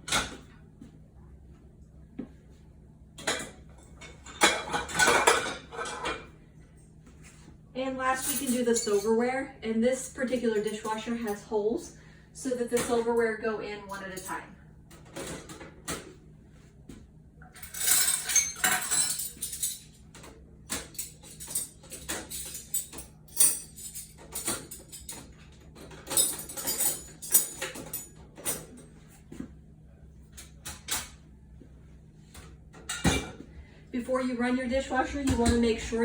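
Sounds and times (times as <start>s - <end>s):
silverware clinking in cutlery basket: 3.2s - 6.3s, 8.1s - 9.2s, 17.5s - 28.8s.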